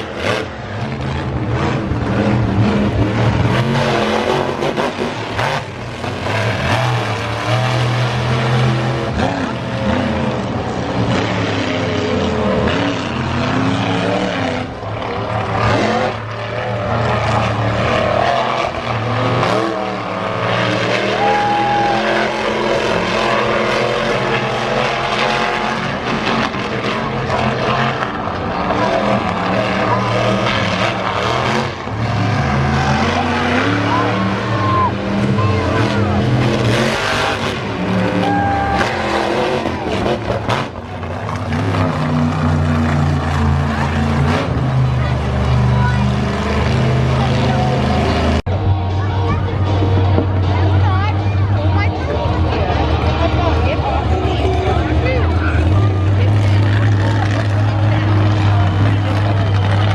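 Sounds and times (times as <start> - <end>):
monster truck engine revving: 0.0 - 59.9.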